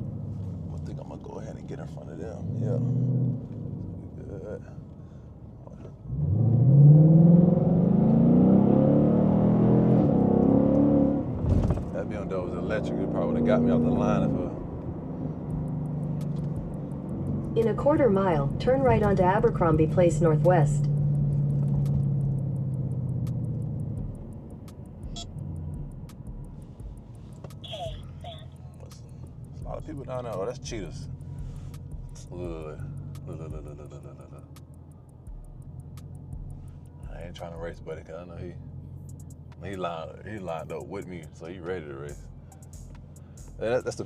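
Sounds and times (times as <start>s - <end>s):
car engine accelerating hard: 0.0s - 4.9s, 5.8s - 44.0s.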